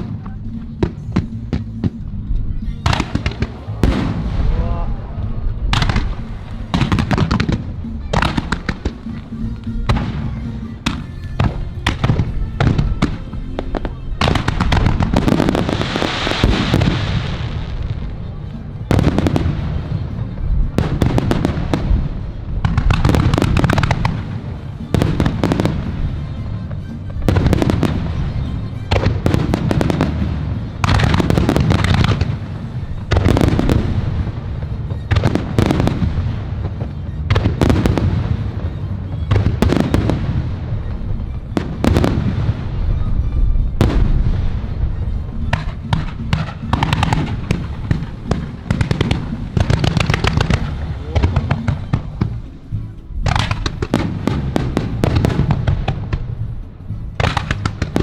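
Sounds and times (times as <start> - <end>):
fireworks booming: 0.0 - 58.0
fireworks crackling: 0.0 - 58.0.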